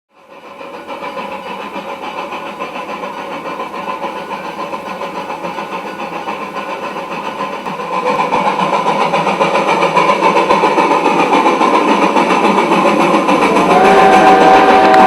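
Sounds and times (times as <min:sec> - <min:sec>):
steam locomotive chuffing: 0:00.1 - 0:15.0
steam locomotive whistle: 0:13.2 - 0:15.0.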